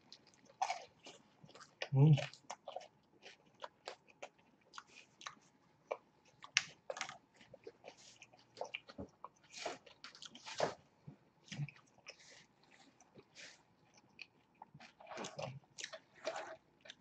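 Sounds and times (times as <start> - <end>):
chewing and biting food: 0.0 - 10.8, 11.5 - 17.0.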